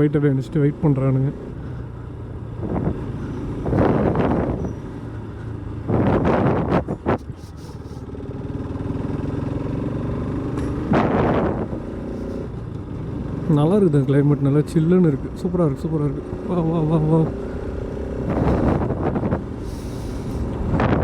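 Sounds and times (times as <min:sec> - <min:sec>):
motorcycle engine running: 0:00.0 - 0:21.0
rushes of noise: 0:10.6 - 0:12.7, 0:17.3 - 0:21.0.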